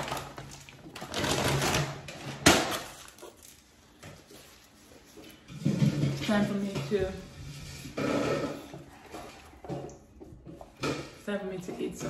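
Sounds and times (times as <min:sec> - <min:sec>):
takeout packaging crinkling: 0:00.0 - 0:03.9.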